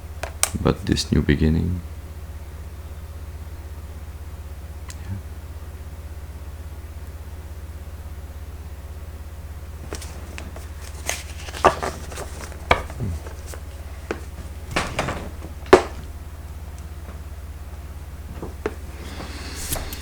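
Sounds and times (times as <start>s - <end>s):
card rustles: 9.8s - 16.1s
cards tapping on table: 9.8s - 16.1s.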